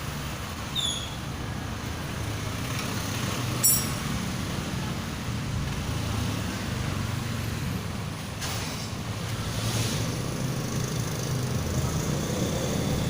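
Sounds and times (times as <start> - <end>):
low rumble of vehicles: 0.0 - 13.0
sharp metallic clink: 3.6 - 4.3.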